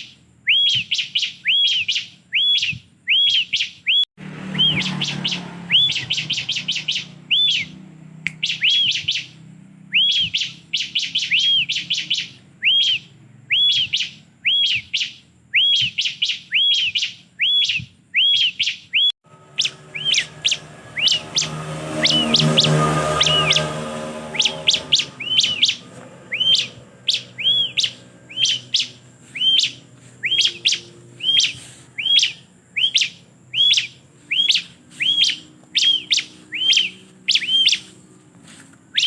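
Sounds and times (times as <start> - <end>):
bird chirping song: 0.0 - 39.0.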